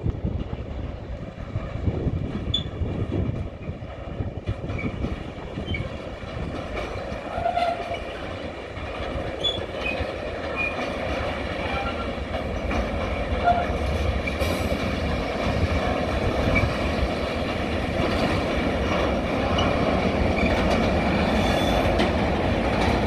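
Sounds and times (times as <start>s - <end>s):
freight train wheels rumbling: 0.0s - 23.0s
high-pitched wheel squeals: 21.2s - 21.9s.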